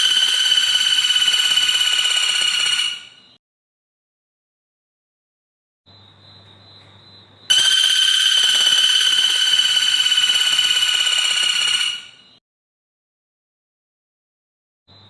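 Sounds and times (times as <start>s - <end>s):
songbird high buzzing trill: 0.0s - 3.4s, 7.4s - 12.4s.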